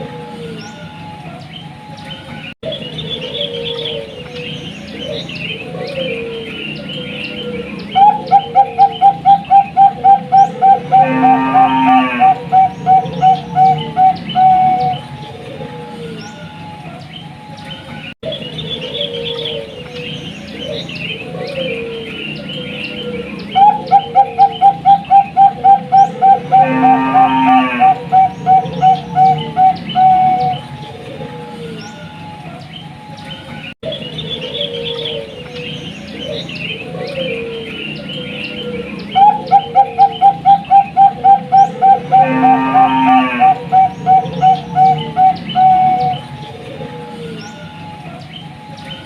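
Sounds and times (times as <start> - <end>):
small birds chirping: 0.0 - 11.2, 12.2 - 26.7, 27.8 - 42.4, 43.4 - 49.0
dove cooing: 2.7 - 16.2, 18.3 - 31.8, 33.9 - 48.3
buzzy bird call: 8.0 - 15.1, 23.6 - 30.7, 39.0 - 46.3.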